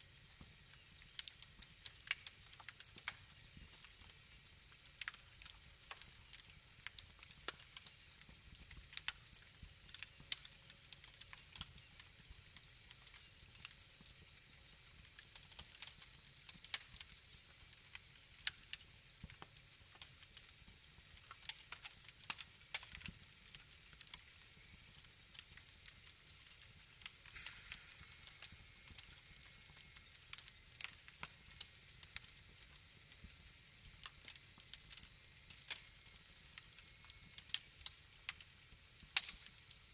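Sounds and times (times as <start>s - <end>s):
wood fire crackling: 0.0s - 39.9s
short hiss: 27.3s - 28.8s.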